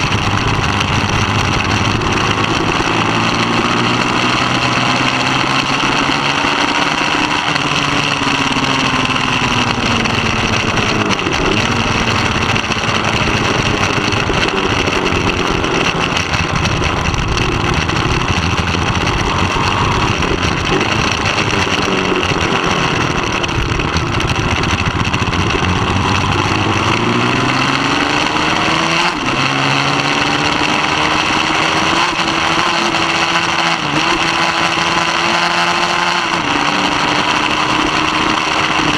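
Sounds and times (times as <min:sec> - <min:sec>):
racing motorcycle engine revving: 0:00.0 - 0:38.9.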